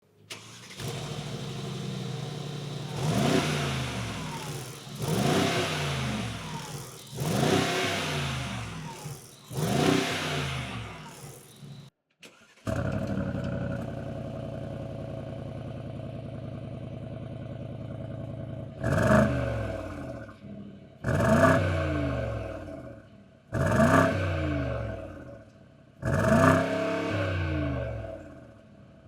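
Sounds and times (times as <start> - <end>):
car engine idling: 0.3 - 11.9, 13.3 - 21.0
engine revving: 0.3 - 11.9, 15.8 - 28.8.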